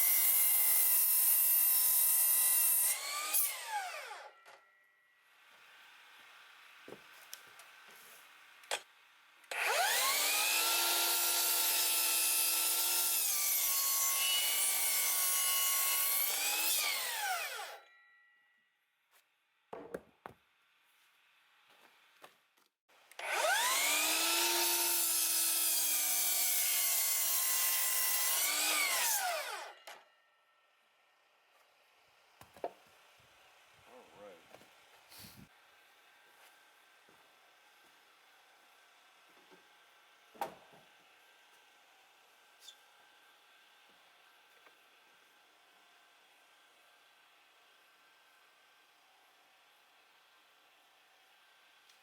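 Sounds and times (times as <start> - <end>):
power saw cutting wood: 0.0 - 4.6, 9.5 - 17.8, 23.0 - 30.0.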